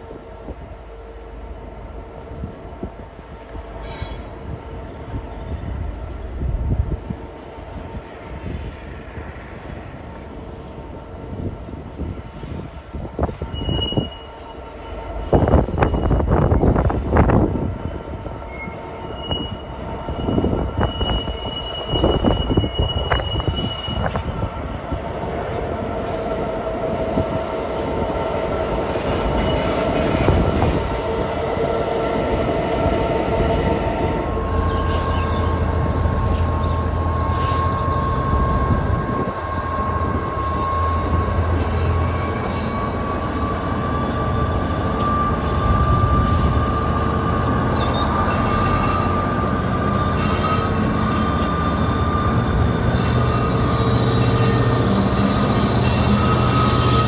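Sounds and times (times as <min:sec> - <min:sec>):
train wheels squealing on rails: 0:00.0 - 0:57.0.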